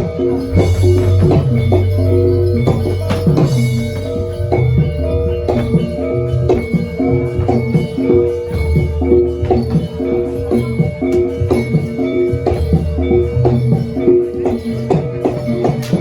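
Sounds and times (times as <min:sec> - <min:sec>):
gongs and metallophones: 0:00.0 - 0:16.0
low drum and gong hits: 0:00.4 - 0:07.6.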